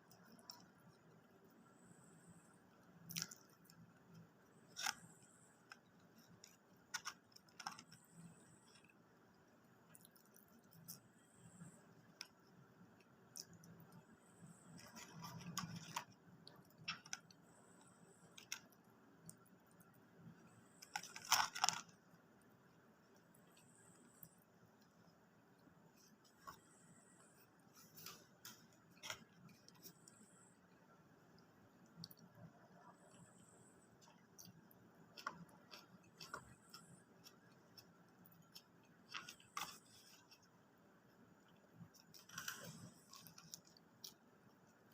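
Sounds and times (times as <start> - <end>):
person eating clicks and crunches: 2.9 - 8.9, 14.7 - 17.4, 18.3 - 22.8.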